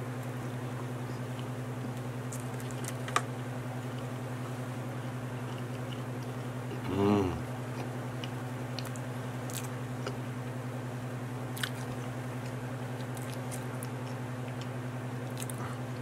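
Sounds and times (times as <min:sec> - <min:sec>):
steady low hum: 0:00.0 - 0:16.0
person chewing: 0:05.0 - 0:10.2, 0:11.5 - 0:16.0.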